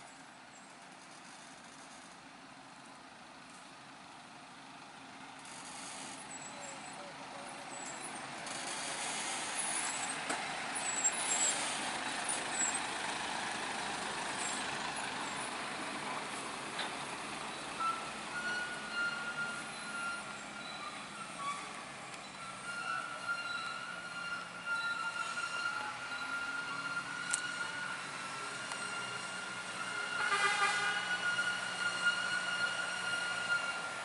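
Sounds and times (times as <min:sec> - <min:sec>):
heavy truck running: 0:00.0 - 0:34.0
short high squeaks: 0:05.4 - 0:07.1, 0:07.7 - 0:12.9, 0:17.6 - 0:34.0.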